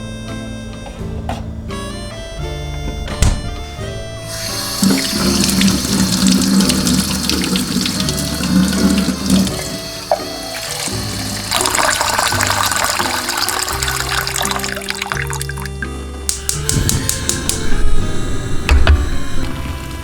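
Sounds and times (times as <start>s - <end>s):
background music: 0.0s - 20.0s
tap water running into sink: 4.3s - 17.6s.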